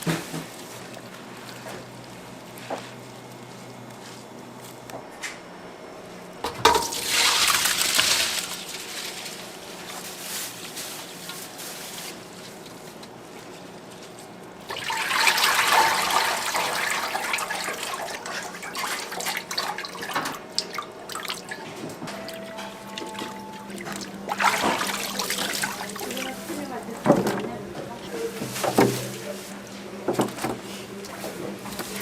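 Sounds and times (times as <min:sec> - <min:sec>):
running water splashing: 0:06.7 - 0:09.0, 0:14.7 - 0:21.6, 0:23.0 - 0:27.4.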